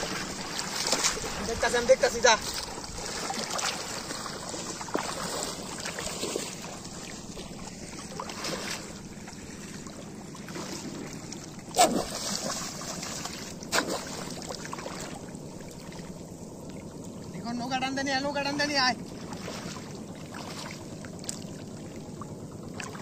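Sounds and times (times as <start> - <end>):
sharp water splashes: 0.0 - 9.6, 10.4 - 16.2, 19.2 - 21.9
water trickling and lapping: 0.0 - 23.0.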